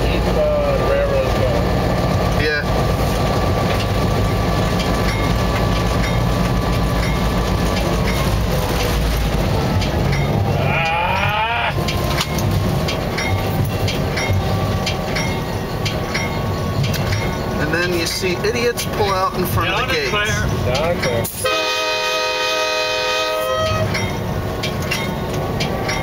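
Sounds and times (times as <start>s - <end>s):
wheels clicking over rail joints: 0.0s - 22.0s, 22.6s - 26.0s
diesel locomotive engine running: 0.0s - 26.0s
wavering high tone: 13.1s - 18.4s.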